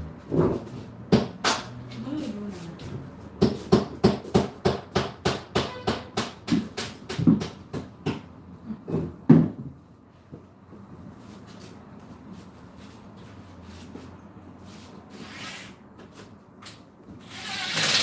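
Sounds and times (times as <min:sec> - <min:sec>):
hammer striking: 0:03.4 - 0:08.2.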